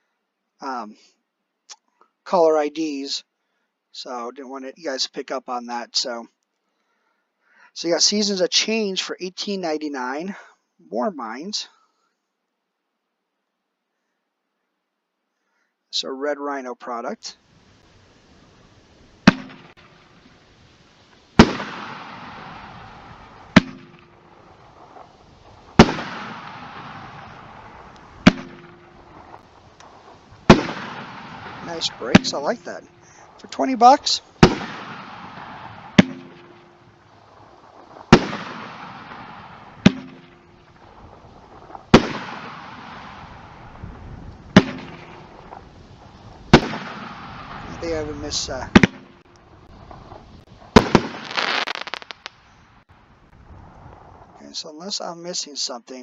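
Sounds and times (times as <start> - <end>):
firework hiss: 17.4 - 52.8
firework bangs: 18.5 - 20.6, 21.2 - 54.1.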